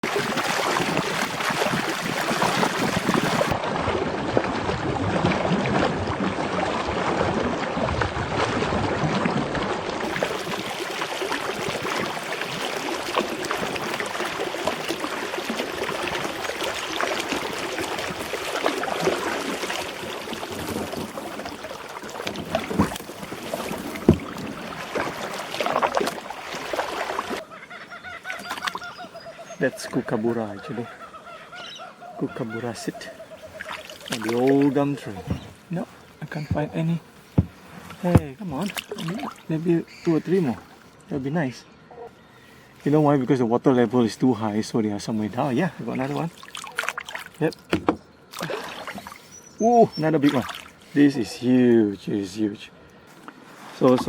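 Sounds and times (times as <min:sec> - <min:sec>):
water sloshing around kayak: 0:00.0 - 0:41.1, 0:44.6 - 0:52.0, 0:52.8 - 0:54.0
light knocks on kayak: 0:37.4 - 0:38.3, 0:47.7 - 0:48.0.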